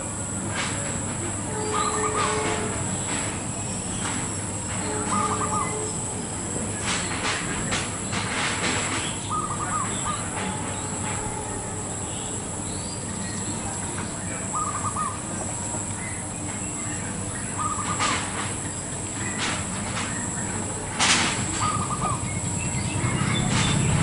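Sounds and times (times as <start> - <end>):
outdoor background noise: 0.0 - 24.0
dove cooing: 5.0 - 5.8, 9.3 - 10.5, 14.5 - 15.8, 17.6 - 18.3, 21.5 - 24.0.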